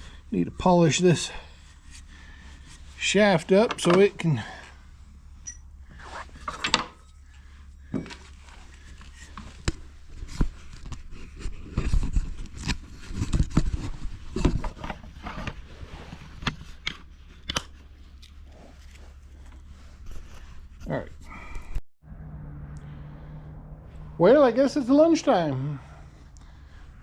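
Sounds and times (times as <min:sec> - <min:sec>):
steady low hum: 0:00.0 - 0:27.0
tools knocking and scraping on workbench: 0:07.9 - 0:08.3.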